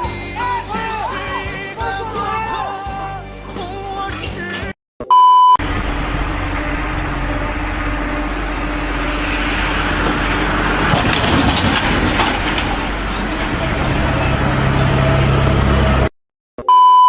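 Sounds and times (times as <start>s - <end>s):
short loud beep: 5.0s - 5.6s, 16.6s - 17.0s
vehicle engine running: 5.6s - 11.4s.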